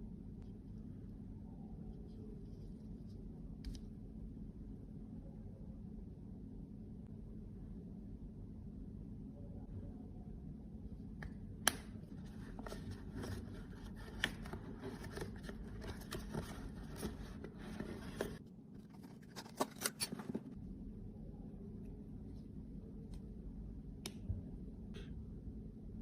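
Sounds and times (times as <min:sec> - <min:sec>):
makeup containers scraping: 0:12.2 - 0:20.6.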